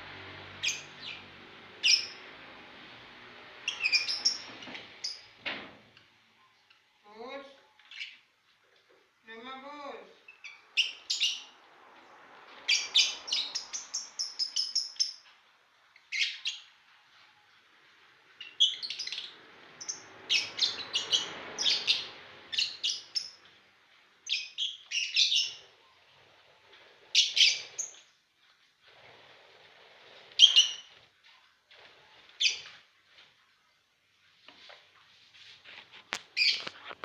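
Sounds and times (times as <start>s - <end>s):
lovebirds chirping: 0.6s - 2.2s, 3.6s - 5.3s, 10.2s - 11.6s, 12.6s - 15.3s, 16.0s - 16.8s, 18.4s - 23.4s, 24.2s - 26.0s, 27.1s - 28.1s, 30.4s - 31.0s, 36.3s - 36.9s.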